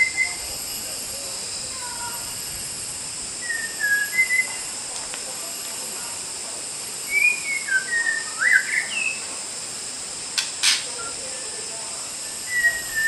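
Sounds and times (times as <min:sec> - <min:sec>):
bird singing whistled phrases: 0:00.0 - 0:00.4, 0:03.4 - 0:04.7, 0:07.1 - 0:09.2, 0:10.6 - 0:11.5, 0:12.2 - 0:13.0.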